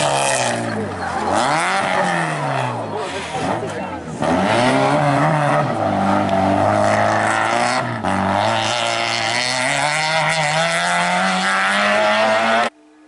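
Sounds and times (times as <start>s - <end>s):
rally car engine revving: 0.0s - 12.9s.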